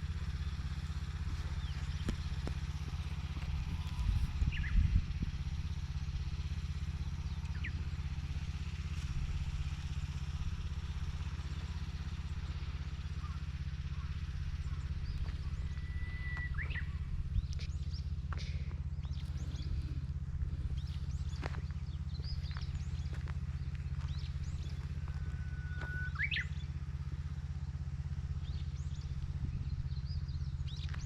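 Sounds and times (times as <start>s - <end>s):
small engine running: 0.0s - 31.0s.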